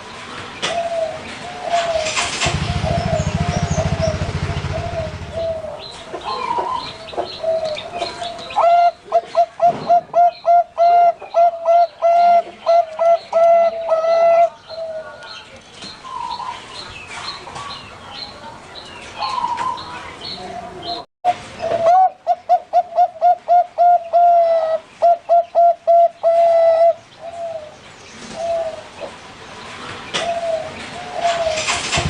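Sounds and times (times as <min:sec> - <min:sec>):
dove rising cooing run: 0:00.6 - 0:15.2, 0:20.5 - 0:29.2, 0:30.2 - 0:32.0
doves cooing: 0:00.6 - 0:15.2, 0:19.2 - 0:29.2, 0:30.1 - 0:32.0
low buzzing hum: 0:02.4 - 0:05.8.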